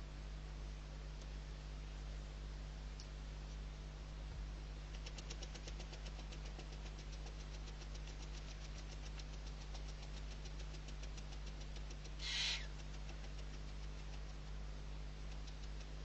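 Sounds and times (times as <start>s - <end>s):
low electrical hum: 0.0s - 16.0s
rapid even ticking: 4.9s - 16.0s
owl chick hissing: 12.1s - 14.1s.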